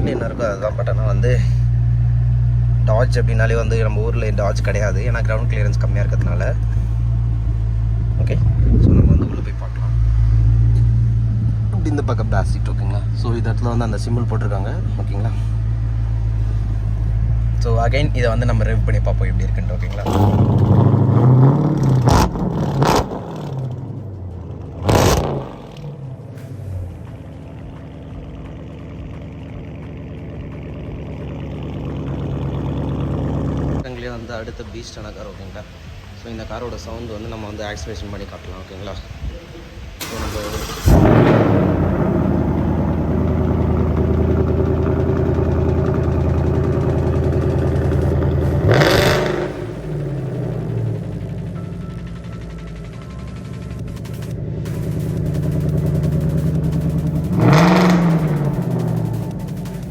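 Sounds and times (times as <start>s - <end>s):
car engine revving: 0.0s - 34.2s, 39.8s - 59.9s.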